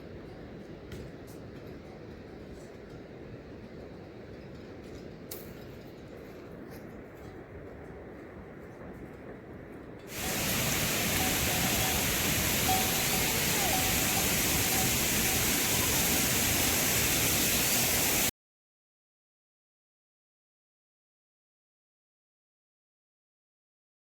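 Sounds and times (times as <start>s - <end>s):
rushing water: 10.1s - 18.3s.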